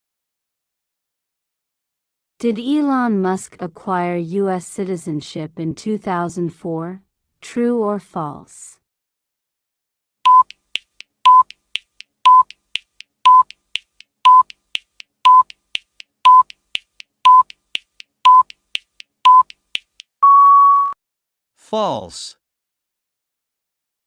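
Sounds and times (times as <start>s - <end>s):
soft timer ticks: 10.3s - 20.2s
electronic countdown beeps: 10.3s - 21.0s.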